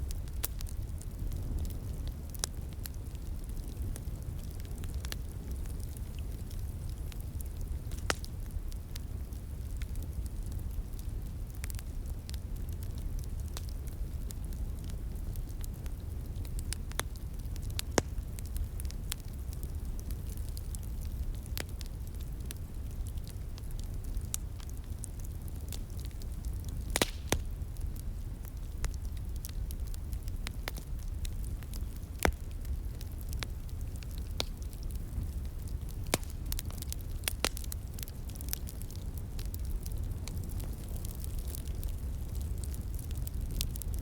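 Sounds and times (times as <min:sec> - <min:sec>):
wood fire crackling: 0:00.0 - 0:44.0
sharp pops of fire: 0:00.1 - 0:44.0.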